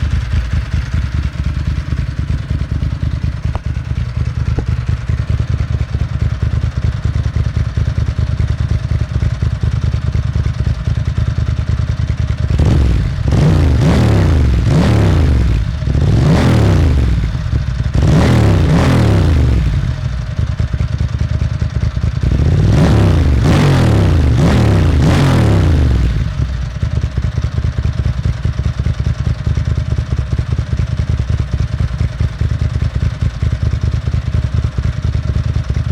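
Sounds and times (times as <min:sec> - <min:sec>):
motorcycle engine idling and revving: 0:00.0 - 0:35.9.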